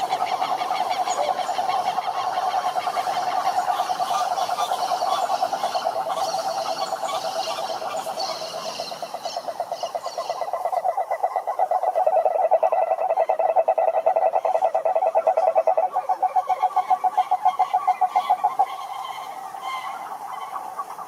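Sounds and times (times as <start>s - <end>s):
frogs pulsing trill: 0.0s - 21.0s
higher frog calls: 0.0s - 21.0s.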